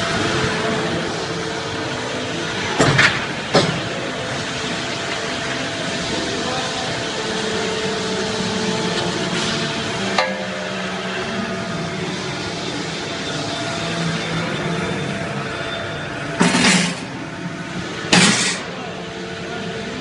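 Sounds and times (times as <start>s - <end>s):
pipe bending machine hum: 0.0s - 20.0s
sharp metallic clanks: 10.2s - 10.8s.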